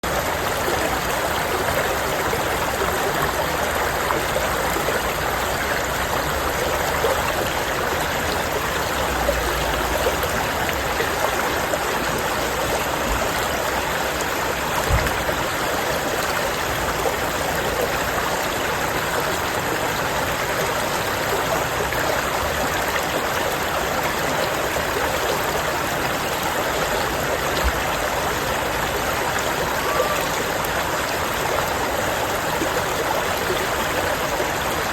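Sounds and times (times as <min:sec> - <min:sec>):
stream gurgling over rocks: 0:00.0 - 0:34.9
brief low thump: 0:14.9 - 0:15.2.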